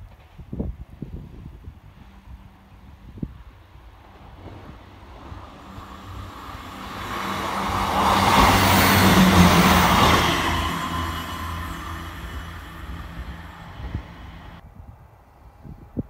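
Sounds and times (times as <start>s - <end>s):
diesel train passing: 1.8s - 14.6s.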